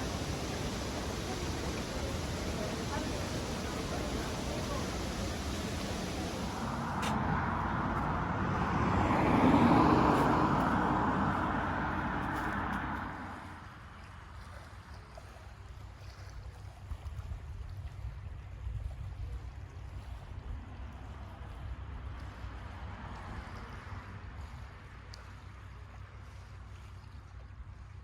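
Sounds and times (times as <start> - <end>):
vehicle passing: 0.0 - 13.8
wind rumble on microphone: 16.8 - 25.1.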